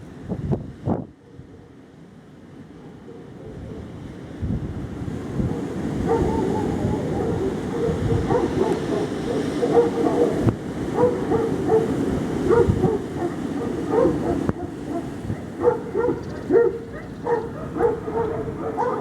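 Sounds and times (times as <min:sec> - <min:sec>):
wind buffeting microphone: 0:00.0 - 0:01.6, 0:03.4 - 0:19.0.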